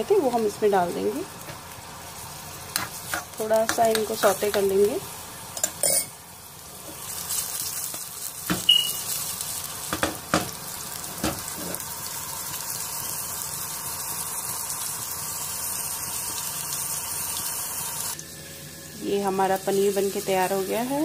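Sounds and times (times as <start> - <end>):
ginger sizzling in hot oil: 0.0 - 21.0
pan knocking on burner grate: 2.7 - 4.7, 8.5 - 8.9, 9.9 - 10.6, 11.2 - 11.7.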